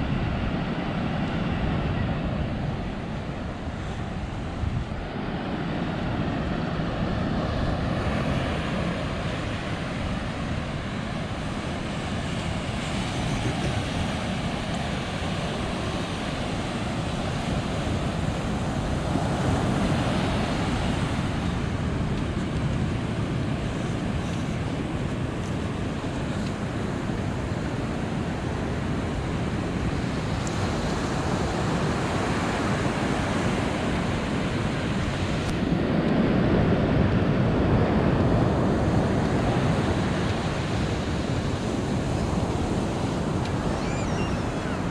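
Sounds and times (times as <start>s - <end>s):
ocean surf breaking on beach: 0.0s - 44.9s
wind buffeting microphone: 0.0s - 44.9s.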